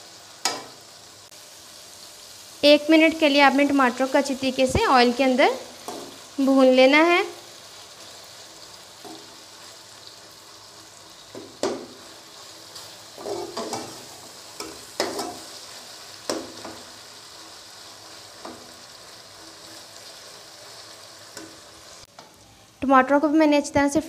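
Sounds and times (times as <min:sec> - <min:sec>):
vegetables sizzling in oil: 0:00.0 - 0:24.0
metal spatula scraping pot: 0:12.8 - 0:15.6.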